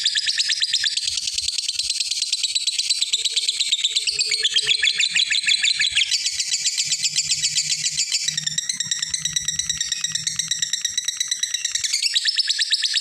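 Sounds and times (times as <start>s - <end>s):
lovebird shrill chatter: 3.5s - 13.0s.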